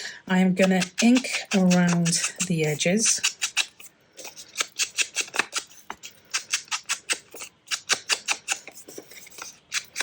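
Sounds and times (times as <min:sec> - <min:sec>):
ink applicator scratching paper: 0:00.6 - 0:10.0.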